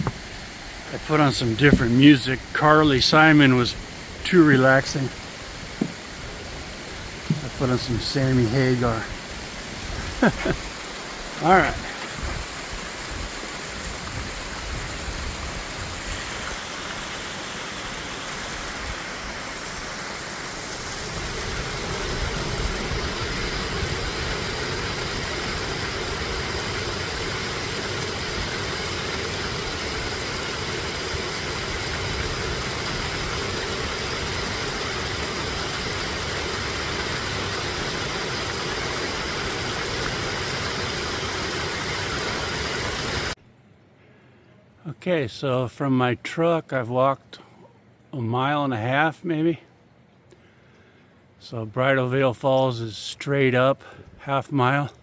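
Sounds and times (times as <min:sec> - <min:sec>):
flowing water rushing: 0:00.0 - 0:43.4.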